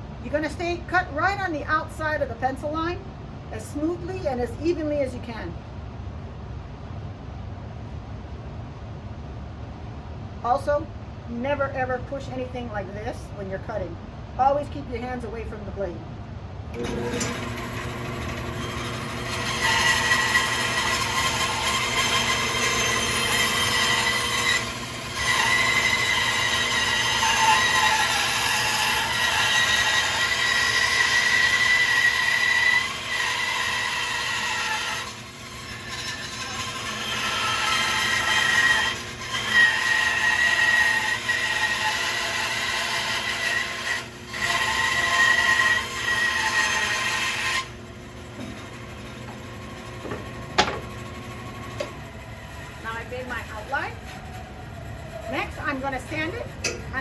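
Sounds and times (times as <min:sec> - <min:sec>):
bandsaw cutting wood: 0:16.8 - 0:57.0.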